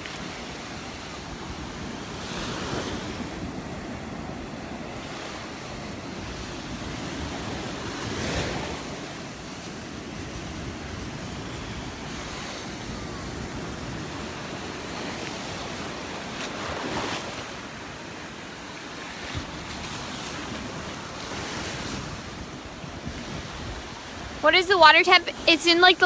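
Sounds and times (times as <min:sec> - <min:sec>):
surf breaking on beach: 0:00.0 - 0:26.0
wind buffeting microphone: 0:19.2 - 0:26.0.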